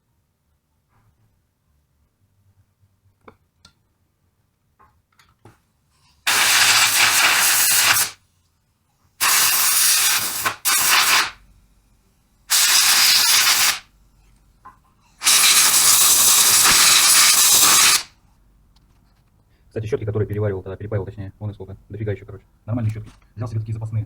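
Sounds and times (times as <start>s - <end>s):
compressed air hissing: 6.2s - 8.2s, 9.2s - 11.4s, 12.5s - 13.9s, 15.2s - 18.1s.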